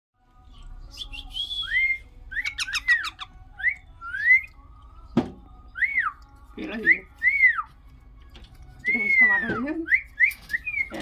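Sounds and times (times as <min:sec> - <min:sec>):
parrot whistling: 0:01.0 - 0:04.5, 0:08.8 - 0:11.0
parrot chirps: 0:02.3 - 0:04.5.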